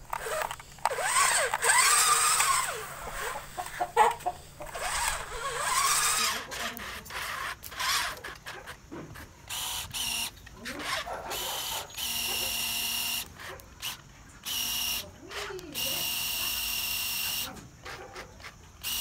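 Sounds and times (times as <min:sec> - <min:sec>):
rising and falling animal calls: 0:01.7 - 0:06.0.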